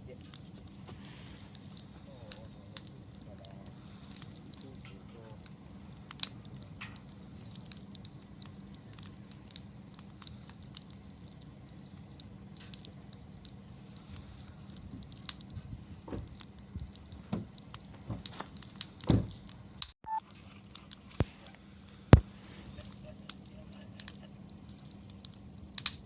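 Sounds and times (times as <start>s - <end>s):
campfire crackling and popping: 0.0s - 26.0s.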